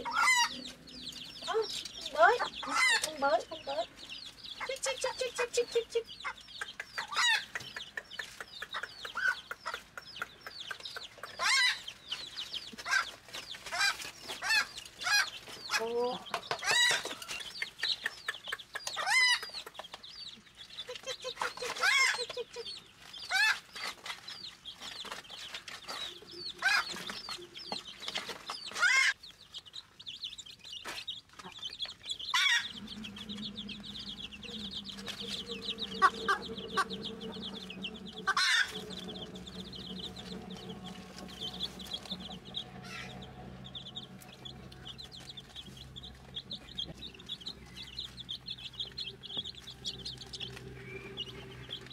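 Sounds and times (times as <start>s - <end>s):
low hum: 0.0s - 6.1s, 32.3s - 51.9s
high-pitched chirping: 0.0s - 12.4s, 32.2s - 51.9s
chickens clucking: 0.0s - 51.9s.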